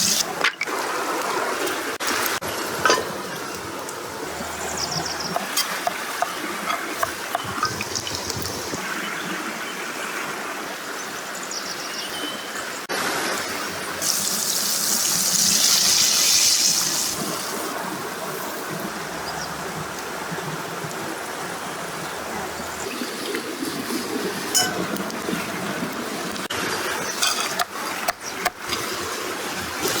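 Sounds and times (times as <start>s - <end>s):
water running and splashing: 0.0s - 9.0s, 13.4s - 18.7s, 19.8s - 30.0s.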